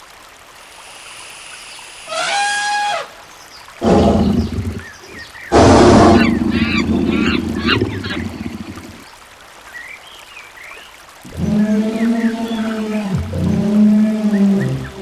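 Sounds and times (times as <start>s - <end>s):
water splashing: 1.9s - 9.5s, 11.0s - 15.0s
low drawn-out call: 2.1s - 3.2s, 3.8s - 9.0s, 11.2s - 15.0s
rumble of water: 3.8s - 9.3s, 11.1s - 15.0s.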